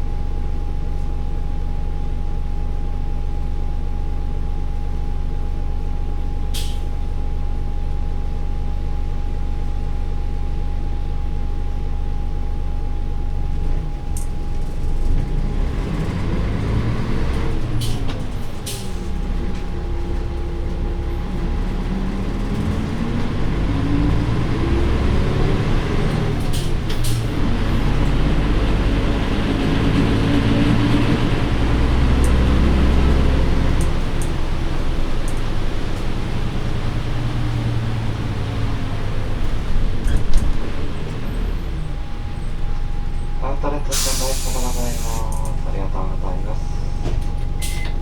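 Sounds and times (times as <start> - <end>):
diesel bus engine pulling away: 6.4 - 7.3, 13.5 - 48.0.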